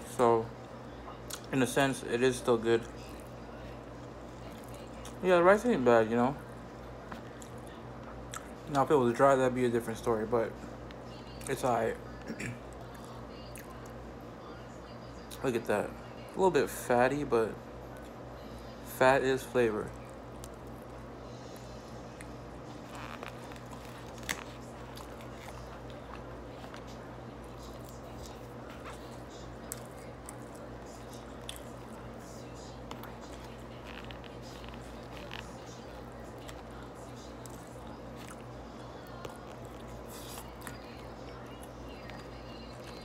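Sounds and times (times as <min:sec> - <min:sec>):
steady low hum: 0:00.0 - 0:43.0
close-up chewing: 0:19.9 - 0:43.0.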